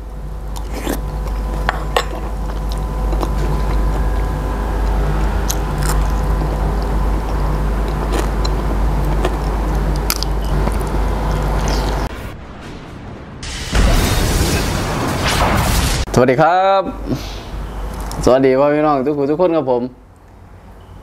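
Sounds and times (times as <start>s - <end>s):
steady low hum: 0.0s - 21.0s
person chewing raw meat and vegetables: 0.5s - 12.1s.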